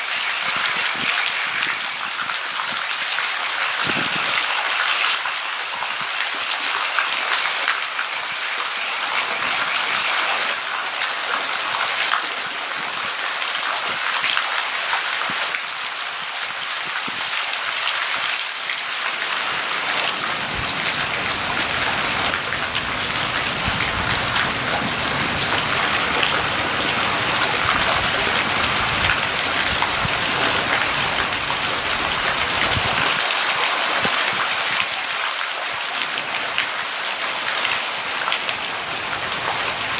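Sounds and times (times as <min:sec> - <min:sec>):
heavy rain falling: 0:00.0 - 0:39.9
low thunder rumble: 0:20.1 - 0:33.2.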